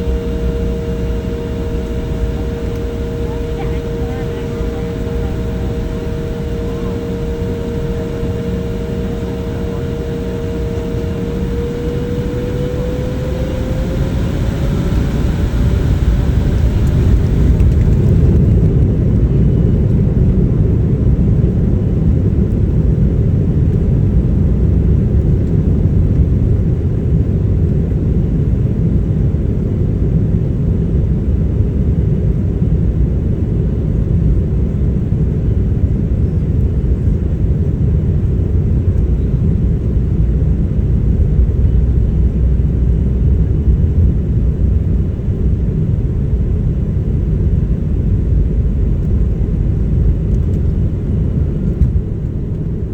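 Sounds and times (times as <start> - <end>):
jet engines spooling up: 0.0 - 18.9.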